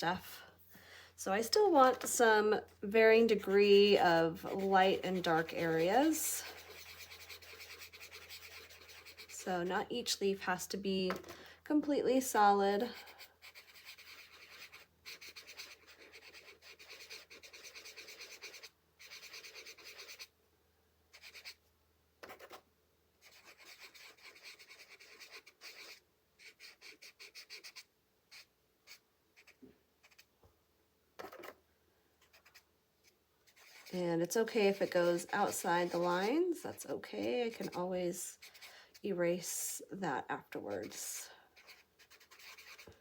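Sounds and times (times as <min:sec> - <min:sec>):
colouring strokes on paper: 0:03.2 - 0:10.0, 0:12.8 - 0:20.3, 0:21.2 - 0:21.6, 0:23.2 - 0:30.3, 0:33.4 - 0:39.8, 0:40.4 - 0:43.0.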